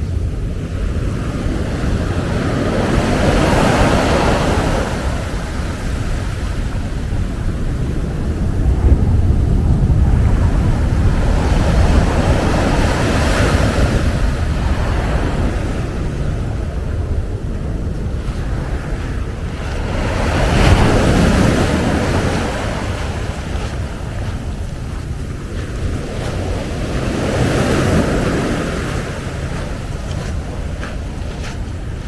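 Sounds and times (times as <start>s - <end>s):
ocean waves breaking: 0.0s - 32.0s
wind rumble on microphone: 0.0s - 32.0s.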